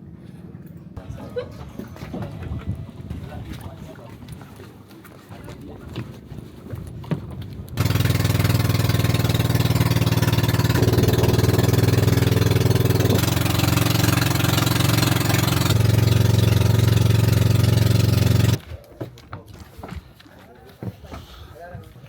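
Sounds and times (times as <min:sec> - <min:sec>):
vehicle engine running loudly: 0:07.8 - 0:18.6.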